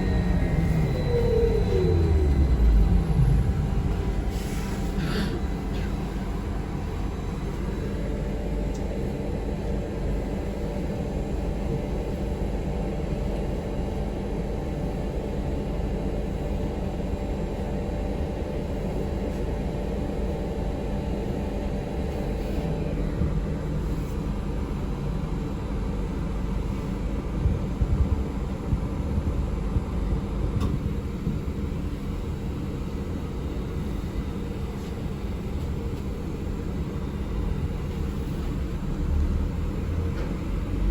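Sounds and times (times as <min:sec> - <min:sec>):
vehicle cabin rumble: 0:00.0 - 0:09.2, 0:26.6 - 0:32.5, 0:33.9 - 0:40.9.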